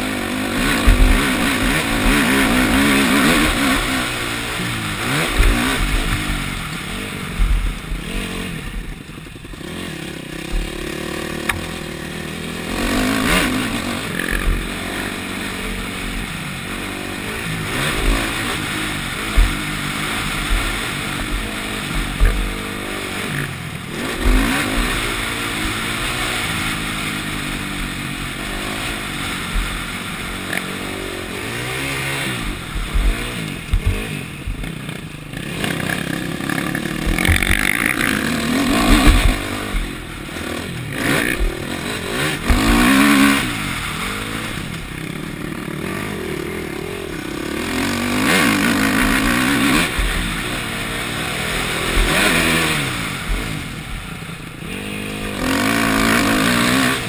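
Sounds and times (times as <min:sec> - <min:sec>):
motorcycle engine revving: 0:00.0 - 0:57.0
low thumps: 0:00.8 - 0:02.2, 0:19.3 - 0:22.6, 0:32.4 - 0:34.7, 0:36.4 - 0:40.2.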